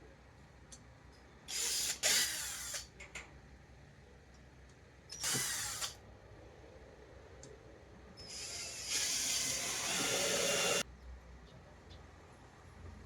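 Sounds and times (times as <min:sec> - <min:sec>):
power drill running: 0:08.2 - 0:10.8.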